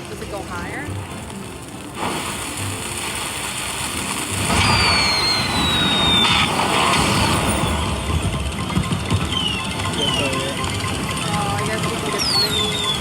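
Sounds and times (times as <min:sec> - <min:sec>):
slot machines din: 0:00.0 - 0:13.0
high tone sliding downward: 0:04.5 - 0:13.0.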